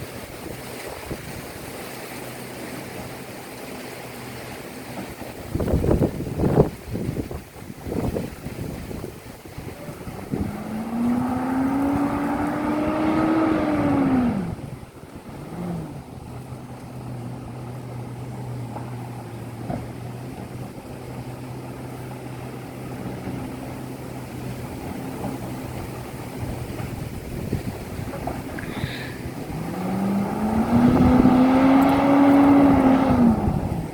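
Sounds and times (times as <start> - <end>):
garbage truck engine revving: 10.0 - 14.8, 28.6 - 33.9.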